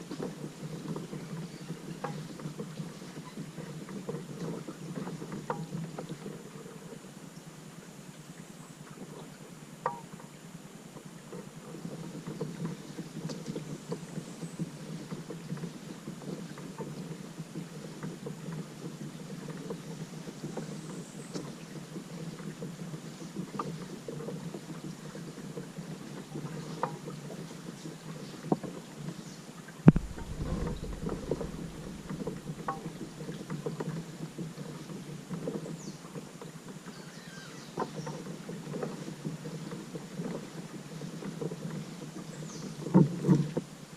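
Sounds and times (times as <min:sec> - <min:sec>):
small knocks and splashes: 0:29.8 - 0:37.0
sharp knock with low thud: 0:29.9 - 0:32.4
water washing: 0:29.9 - 0:33.6.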